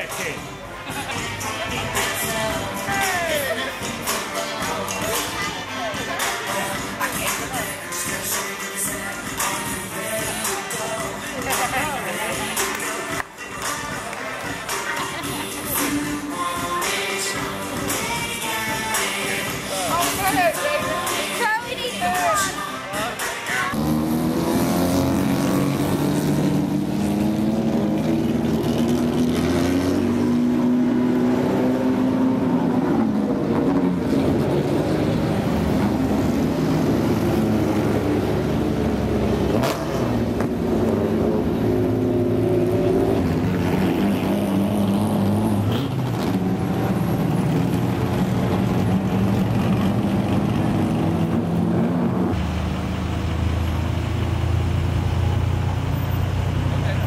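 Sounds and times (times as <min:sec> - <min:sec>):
vehicle engine running: 0:32.2 - 0:57.0.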